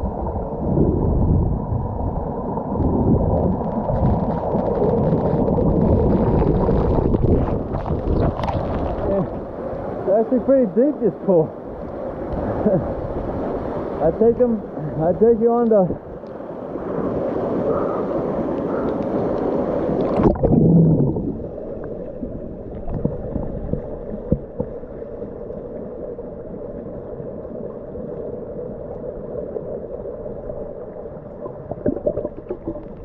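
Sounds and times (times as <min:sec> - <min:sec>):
muffled underwater rumble: 0:00.0 - 0:09.9, 0:17.6 - 0:33.0.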